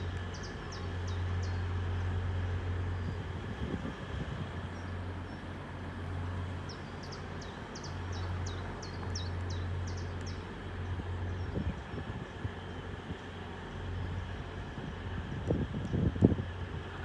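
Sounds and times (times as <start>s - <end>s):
steady low rumble: 0.0s - 17.0s
songbird high chirps: 0.1s - 1.8s, 6.7s - 10.5s.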